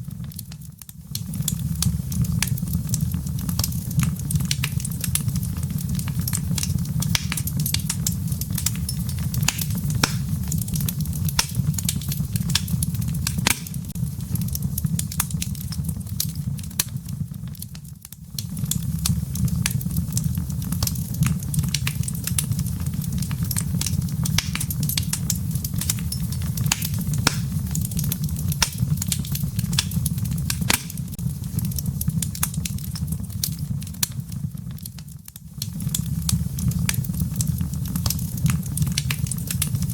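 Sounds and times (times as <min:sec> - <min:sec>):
low rumble of flames: 0:00.0 - 0:39.9
wood fire crackling: 0:00.0 - 0:39.9
logs popping and snapping: 0:07.0 - 0:14.0, 0:24.3 - 0:31.2.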